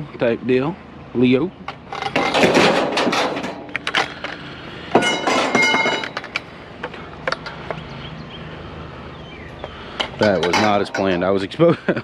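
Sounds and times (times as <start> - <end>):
ringing metal rattle: 1.9 - 4.0, 5.0 - 6.4, 10.1 - 11.3
metal pieces clinking: 5.0 - 6.4.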